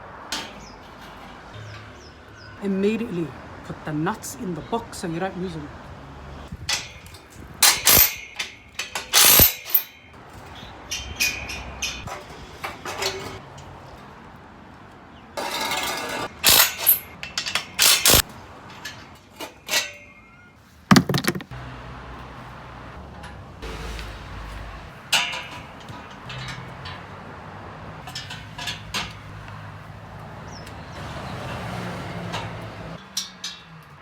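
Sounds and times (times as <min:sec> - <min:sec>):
metal clanks and clicks: 0:28.0 - 0:29.4.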